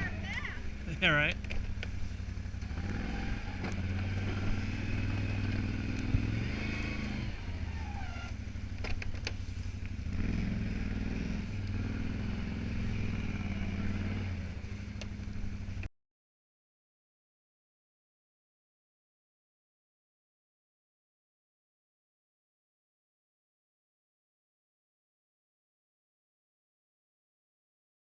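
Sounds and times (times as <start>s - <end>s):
atv engine running: 0.0s - 15.9s.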